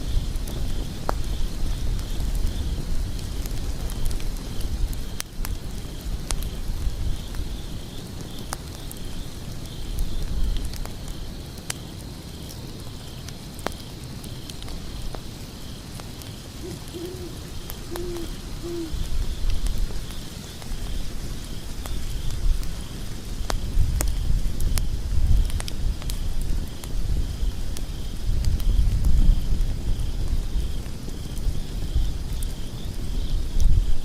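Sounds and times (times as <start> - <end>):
wood fire crackling: 0.0 - 34.0
owl hooting: 16.6 - 19.2.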